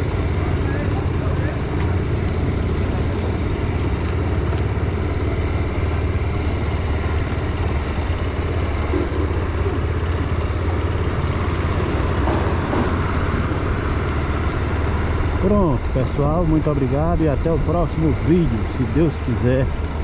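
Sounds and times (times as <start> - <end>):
motorcycle engine rumbling: 0.0 - 20.0
road noise: 0.0 - 20.0.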